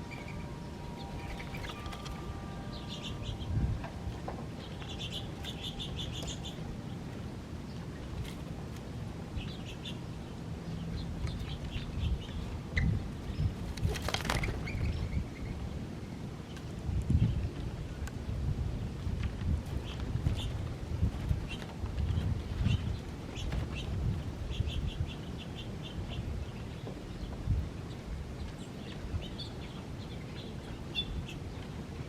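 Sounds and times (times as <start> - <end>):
small birds chirping: 4.6 - 7.0.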